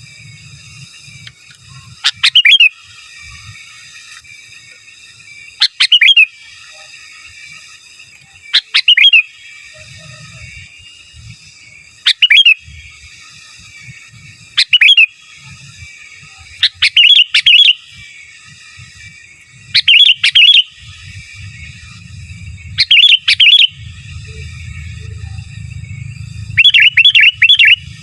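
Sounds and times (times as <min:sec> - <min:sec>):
bulbul chirping song: 0:00.0 - 0:03.9, 0:04.5 - 0:28.0
faint bird chatter: 0:00.0 - 0:28.0
low rumble: 0:19.5 - 0:28.0.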